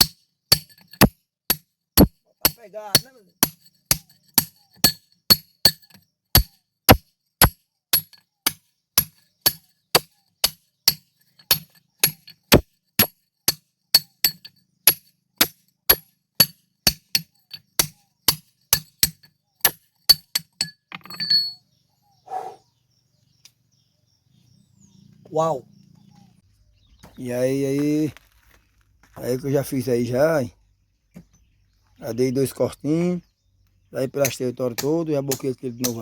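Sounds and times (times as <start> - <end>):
hammer striking steel into rock: 0.0 - 20.8, 34.2 - 36.0.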